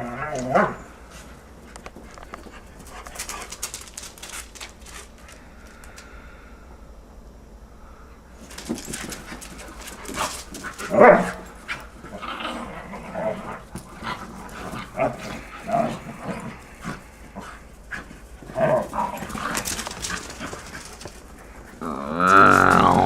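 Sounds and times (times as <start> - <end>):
dogs growling: 8.5 - 23.0
dogs yelping: 9.3 - 13.2.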